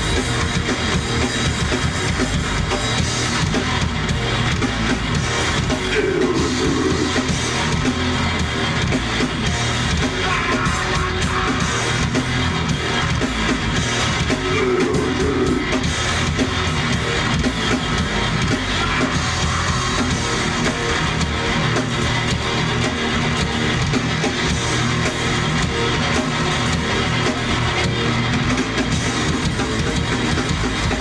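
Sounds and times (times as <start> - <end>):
live rock band: 0.0 - 31.0.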